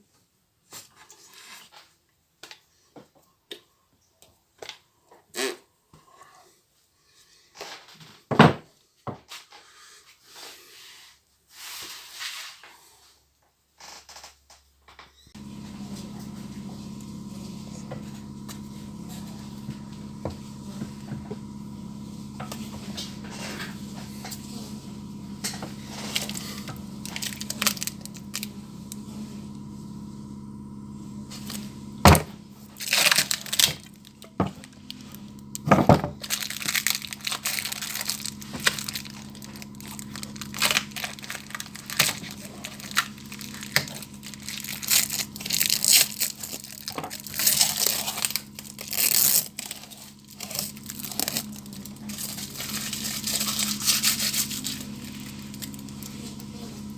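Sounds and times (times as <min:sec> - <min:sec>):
steady mechanical hum: 0:15.3 - 0:56.9.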